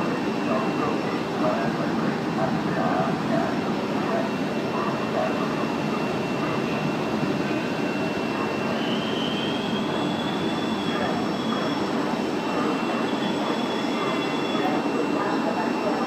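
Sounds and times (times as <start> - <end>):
high-pitched wheel squeal: 8.8 - 12.0.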